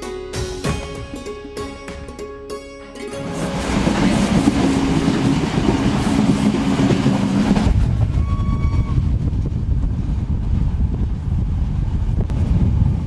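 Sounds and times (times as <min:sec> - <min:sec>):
moving train rumble and wind: 0:03.1 - 0:13.0.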